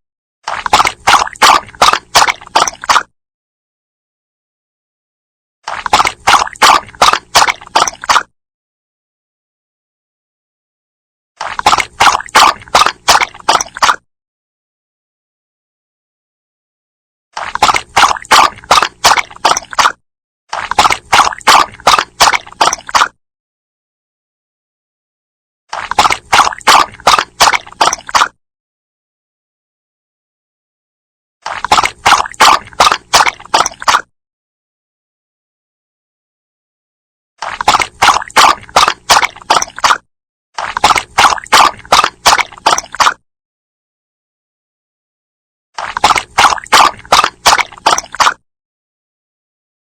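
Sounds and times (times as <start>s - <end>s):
dog lapping water: 0.5s - 3.1s, 5.7s - 8.3s, 11.4s - 14.0s, 17.4s - 23.2s, 25.7s - 28.4s, 31.4s - 34.1s, 37.4s - 40.0s, 40.6s - 43.2s, 45.8s - 48.4s.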